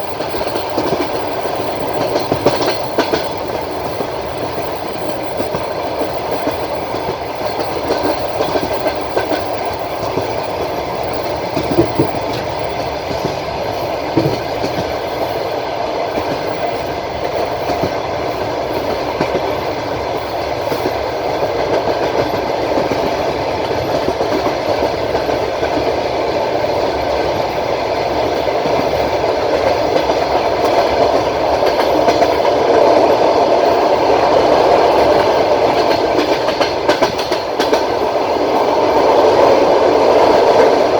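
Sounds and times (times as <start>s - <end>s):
train wheels rumbling on rails: 0.0s - 40.9s
train wheel knocks: 0.1s - 13.4s, 14.0s - 15.0s, 28.3s - 33.7s, 34.4s - 40.9s.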